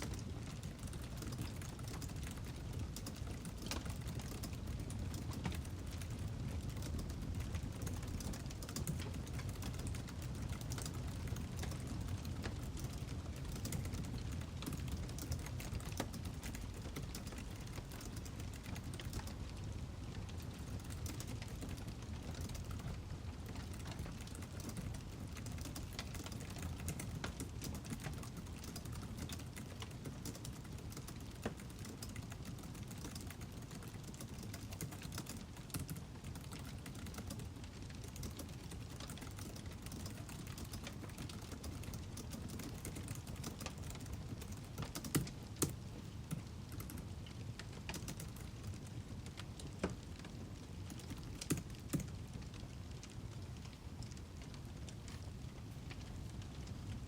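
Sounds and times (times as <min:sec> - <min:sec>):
low rumble of fire: 0:00.0 - 0:57.0.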